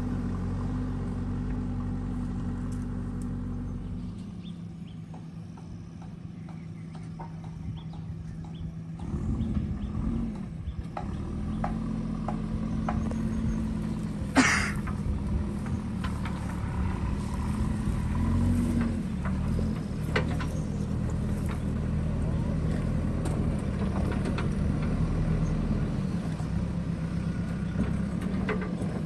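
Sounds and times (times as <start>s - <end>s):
backhoe diesel engine running: 0.0s - 29.0s.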